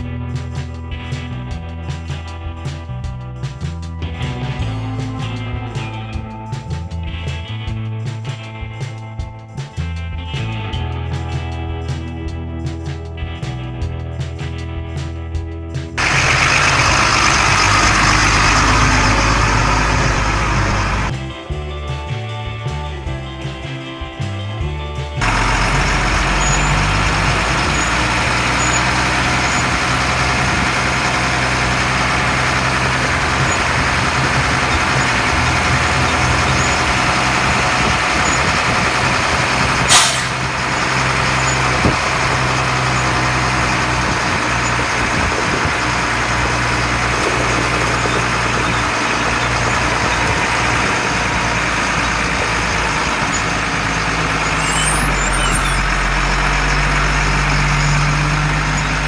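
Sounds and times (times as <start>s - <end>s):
truck diesel engine running: 13.3s - 22.1s, 24.6s - 59.0s
sharp hiss: 39.9s - 40.5s.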